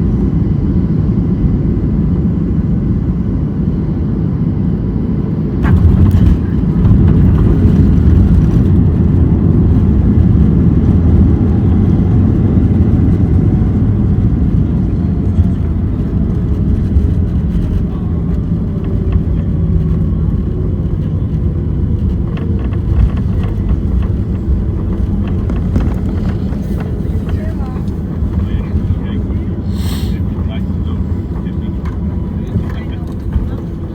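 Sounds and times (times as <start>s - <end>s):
jet engines spooling down: 5.4s - 33.9s.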